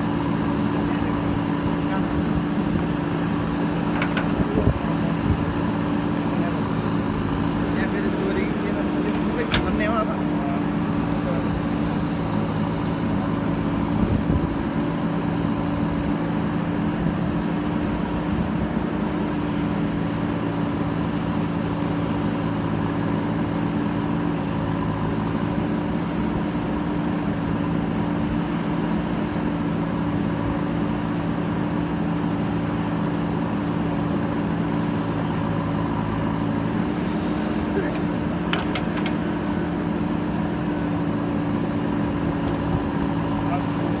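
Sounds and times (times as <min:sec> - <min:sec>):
diesel engine running: 0:00.0 - 0:44.0
brief knock: 0:37.9 - 0:39.3.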